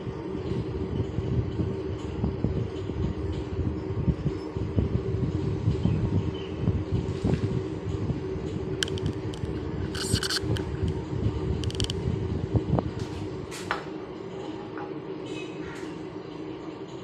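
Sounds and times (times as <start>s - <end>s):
milling machine hum and rumble: 0.0s - 17.0s
high-pitched scrapes or squeaks: 9.9s - 10.6s.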